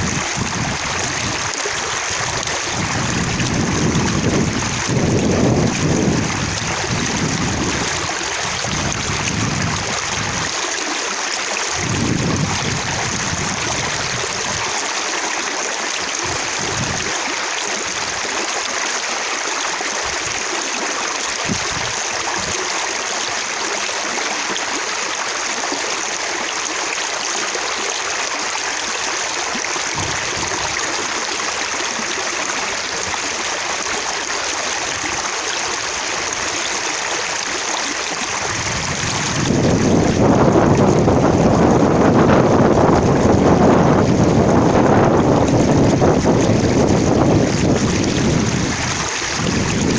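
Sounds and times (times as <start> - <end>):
wind rumble on microphone: 0.0 - 10.6, 11.7 - 14.8, 16.1 - 17.1, 21.4 - 22.7, 29.9 - 31.0, 38.2 - 49.9
flowing water splashing: 0.0 - 49.9.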